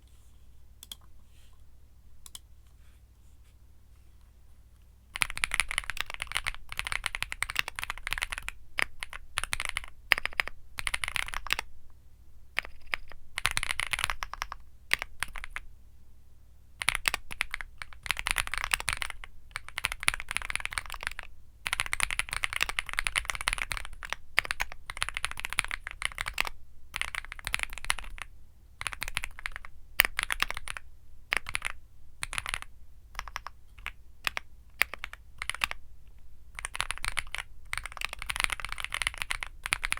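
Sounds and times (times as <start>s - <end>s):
mechanical keyboard typing: 5.2s - 11.7s, 12.6s - 15.6s, 16.8s - 35.8s, 36.6s - 39.9s.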